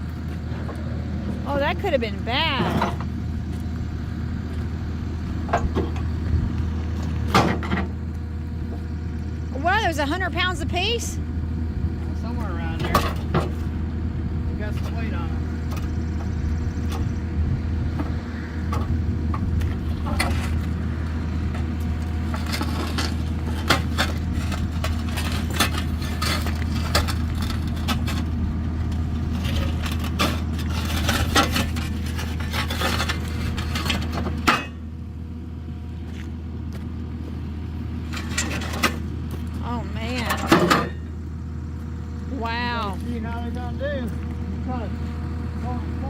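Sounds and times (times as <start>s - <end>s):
vehicle engine running: 0.0s - 46.0s
metal clanks and scrapes: 2.4s - 3.1s, 7.0s - 8.0s, 12.4s - 13.8s, 18.0s - 34.9s, 38.0s - 41.2s.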